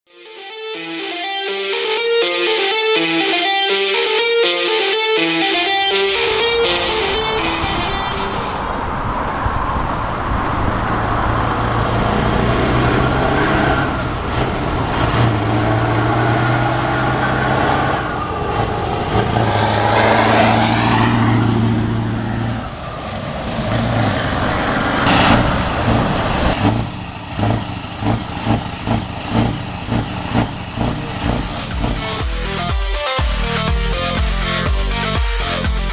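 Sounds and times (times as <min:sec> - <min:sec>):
pulsing engine blips: 0:30.8 - 0:35.9.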